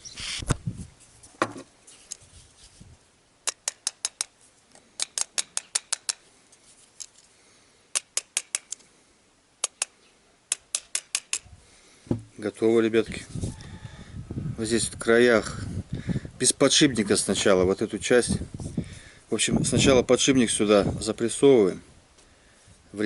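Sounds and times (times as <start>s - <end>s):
sharp taps of small parts: 3.4s - 6.2s, 7.9s - 8.8s, 9.6s - 11.5s
knocks: 12.1s - 12.3s.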